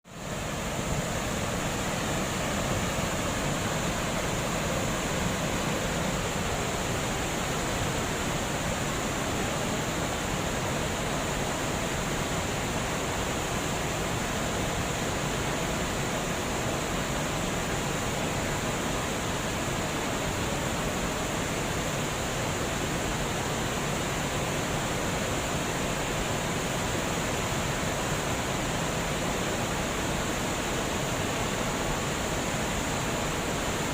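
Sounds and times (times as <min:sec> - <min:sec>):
water flowing over a dam: 0:00.1 - 0:33.9.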